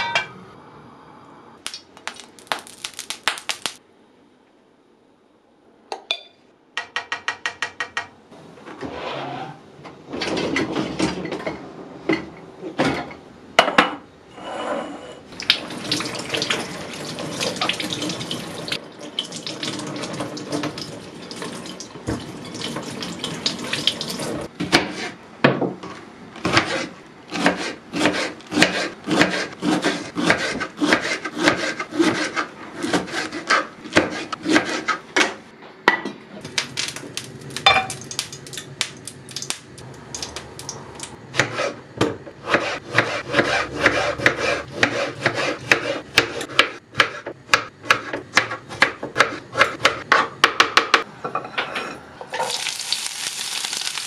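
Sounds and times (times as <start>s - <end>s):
water running at a sink: 15.4s - 24.5s, 52.4s - 54.0s
dishes and utensils clattering: 51.3s - 52.6s.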